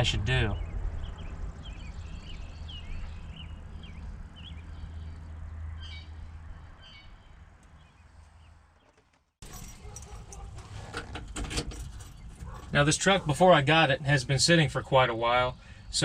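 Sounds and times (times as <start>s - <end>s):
low outdoor rumble: 0.0s - 8.8s
small birds chirping: 0.0s - 9.2s.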